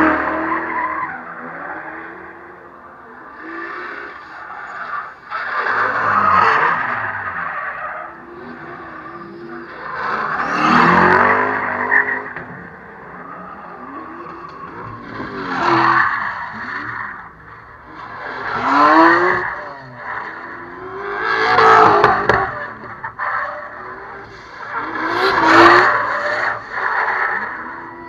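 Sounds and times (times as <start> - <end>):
drift cars revving past: 0.0 - 28.0.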